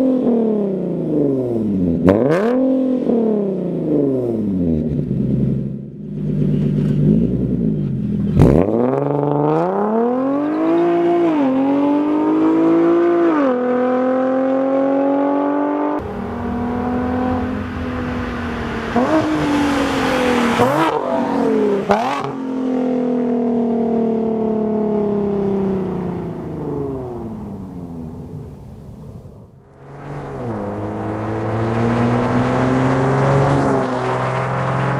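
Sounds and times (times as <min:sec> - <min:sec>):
car exhaust accelerating hard: 0:15.9 - 0:34.9.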